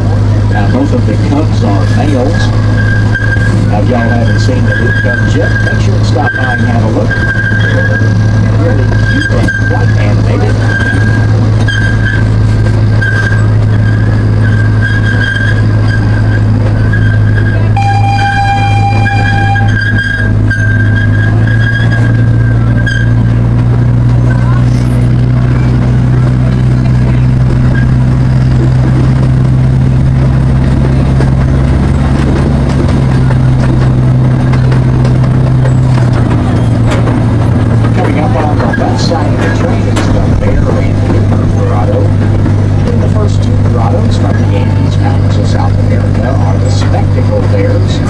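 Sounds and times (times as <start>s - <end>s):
miniature train low drone: 0.0s - 48.0s
thin high tone: 17.7s - 20.9s.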